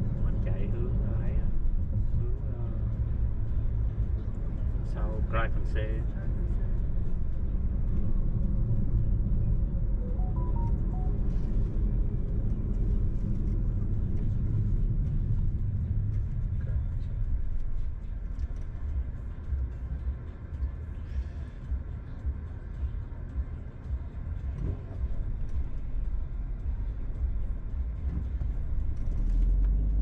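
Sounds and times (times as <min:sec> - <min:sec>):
car engine and tyre rumble: 0:00.0 - 0:30.0
short tones at different pitches: 0:10.0 - 0:11.3.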